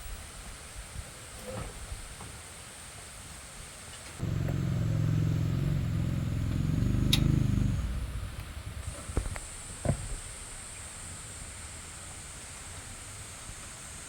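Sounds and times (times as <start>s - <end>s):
tractor engine running: 4.2s - 9.1s
sharp click: 7.1s - 7.4s.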